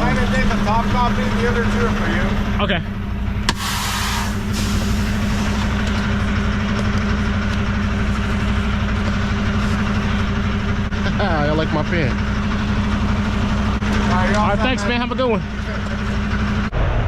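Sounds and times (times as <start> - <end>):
diesel truck engine idling: 0.0 - 16.7
brief hiss: 3.5 - 5.8.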